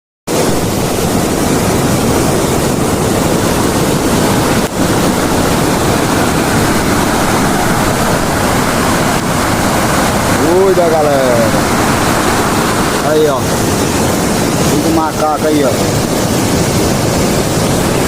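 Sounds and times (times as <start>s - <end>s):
floodwater rushing: 0.3s - 18.0s.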